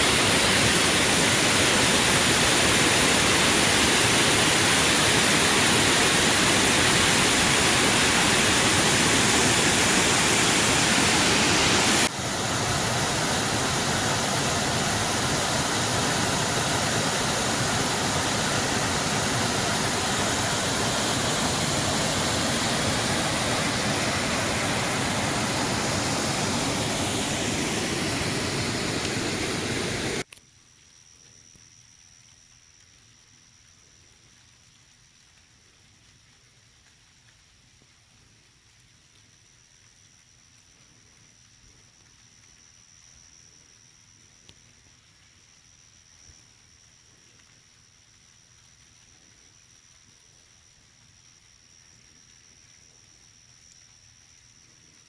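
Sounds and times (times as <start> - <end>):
waterfall rushing: 0.0 - 30.2.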